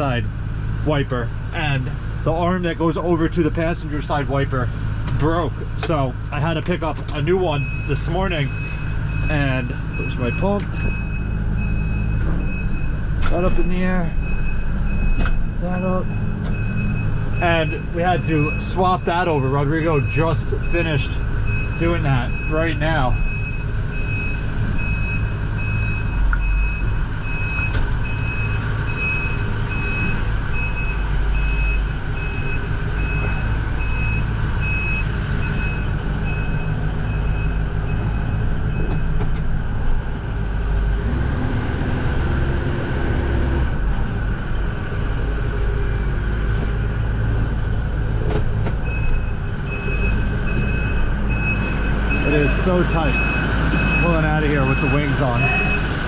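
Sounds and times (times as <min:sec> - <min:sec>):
truck engine running: 0:00.0 - 0:56.0
reversing alarm beeping: 0:07.5 - 0:39.2, 0:48.8 - 0:55.9.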